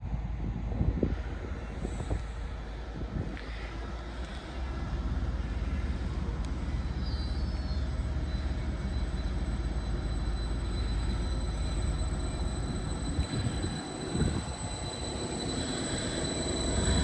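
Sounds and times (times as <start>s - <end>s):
train rumbling: 0.0s - 17.0s
faint high whine: 5.4s - 17.0s.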